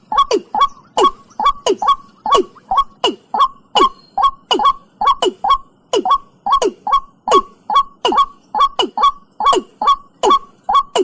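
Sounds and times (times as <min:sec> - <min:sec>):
bird calling hollow notes: 0:00.0 - 0:11.0.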